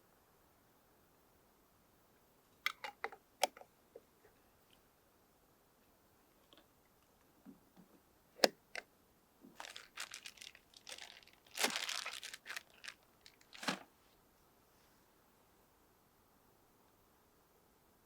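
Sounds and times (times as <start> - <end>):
crinkling and rustling: 9.5 - 14.0.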